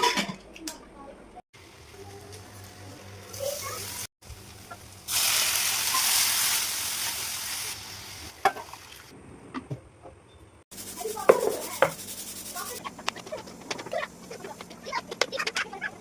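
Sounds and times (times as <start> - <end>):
food sizzling in hot oil: 1.6 - 9.1, 10.7 - 12.8.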